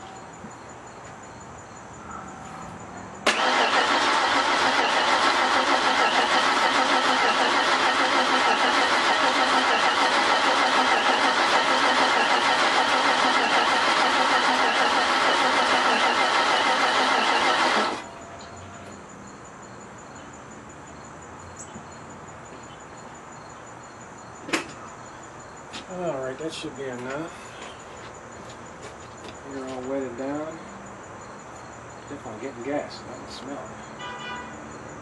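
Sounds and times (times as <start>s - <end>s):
car engine cranking on starter: 3.2s - 18.1s.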